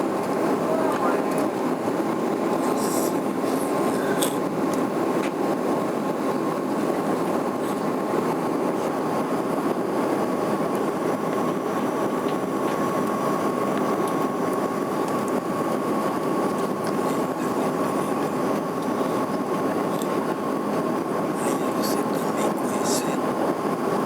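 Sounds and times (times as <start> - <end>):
airliner cabin rushing hum: 0.0 - 24.0
faint steady whine: 0.0 - 24.0.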